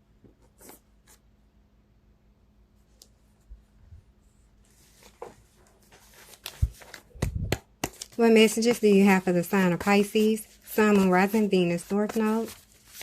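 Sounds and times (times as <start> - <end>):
cards shuffling and rustling: 4.7 - 8.8, 9.6 - 13.0.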